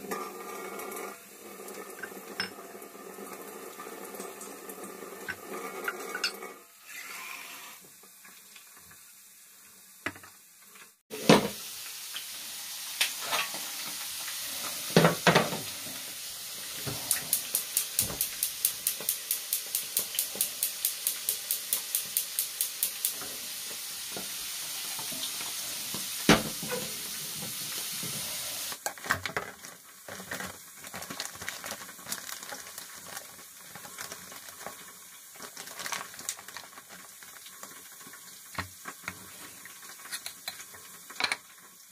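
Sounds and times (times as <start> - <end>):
frying hiss: 0.0 - 41.9
utensils knocking: 16.8 - 23.3.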